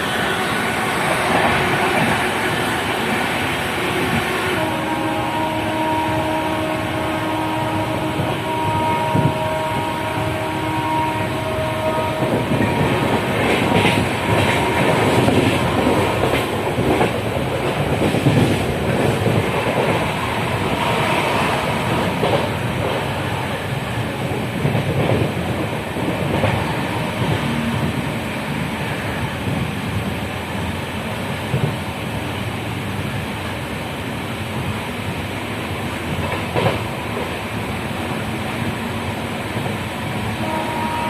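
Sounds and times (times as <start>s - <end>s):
train wheels clattering on rails: 12.1s - 28.0s, 34.6s - 37.4s.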